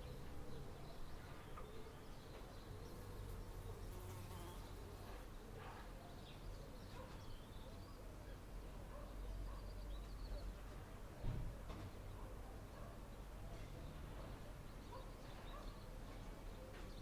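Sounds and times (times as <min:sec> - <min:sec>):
insect buzzing: 0:03.3 - 0:04.8.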